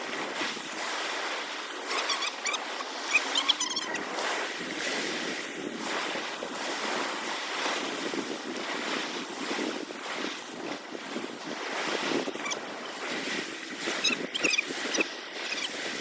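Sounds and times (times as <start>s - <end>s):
sea water sloshing: 0.0s - 16.0s
wind on the microphone: 0.0s - 16.0s.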